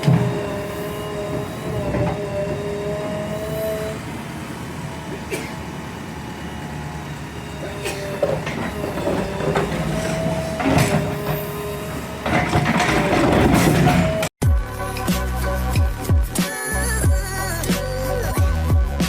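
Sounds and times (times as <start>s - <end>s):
whining tones: 0.0s - 14.3s
diesel engine running: 0.0s - 14.4s.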